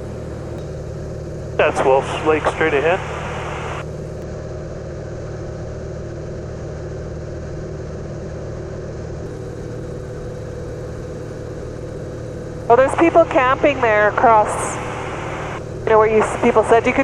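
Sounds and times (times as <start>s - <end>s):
propeller plane engine droning: 0.0s - 17.0s.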